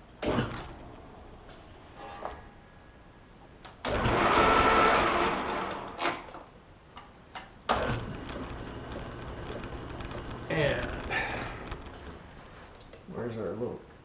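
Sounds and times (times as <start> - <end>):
metal lathe motor and gear whine: 8.0 - 12.2.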